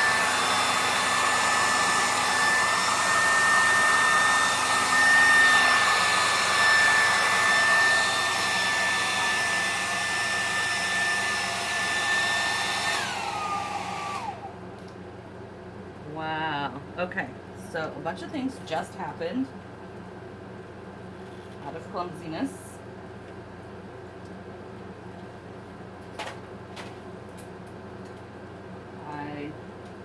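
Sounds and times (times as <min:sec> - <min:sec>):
hairdryer running: 0:00.0 - 0:14.6.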